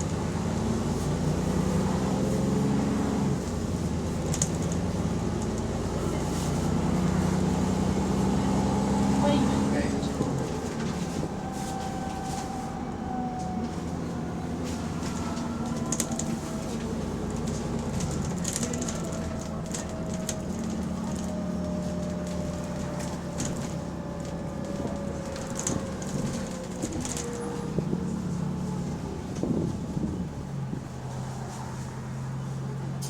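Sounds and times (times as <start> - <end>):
bus engine running: 0.0 - 33.0.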